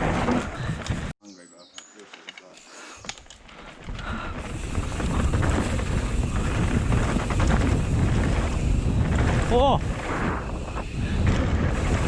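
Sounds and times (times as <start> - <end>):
bike tyres rumbling over dirt: 3.5 - 12.0
wind buffeting microphone: 3.8 - 12.0.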